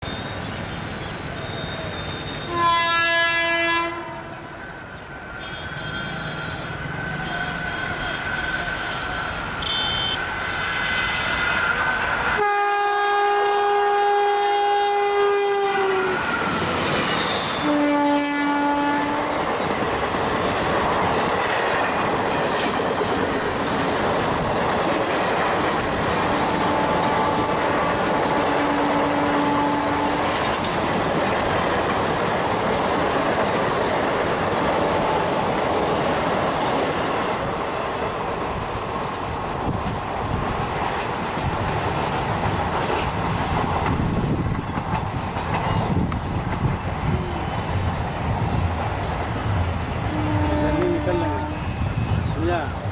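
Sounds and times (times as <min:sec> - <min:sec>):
locomotive horn: 0:01.4 - 0:04.5, 0:05.4 - 0:10.3, 0:12.3 - 0:19.5, 0:26.2 - 0:30.5, 0:50.1 - 0:52.1
wheels clattering on rail joints: 0:19.4 - 0:47.2.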